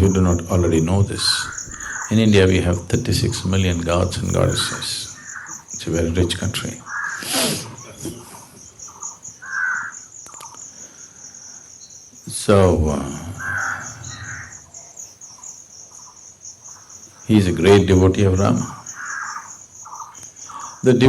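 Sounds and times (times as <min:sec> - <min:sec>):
crickets chirring: 0:00.0 - 0:21.0
short bird calls: 0:01.1 - 0:02.4, 0:03.2 - 0:05.7.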